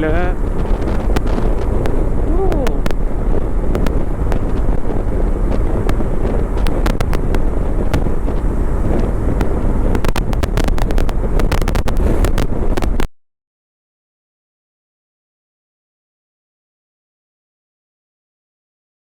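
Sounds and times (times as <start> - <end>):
wind buffeting microphone: 0.0 - 13.1.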